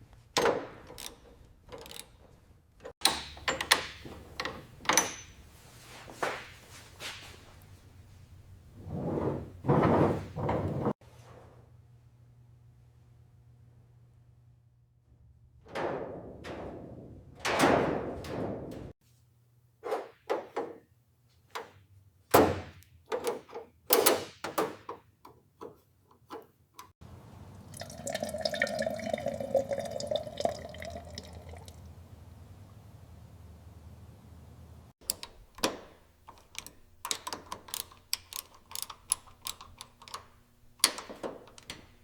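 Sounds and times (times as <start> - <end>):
metal parts knocking and clunking: 0.3 - 5.6, 35.0 - 42.0.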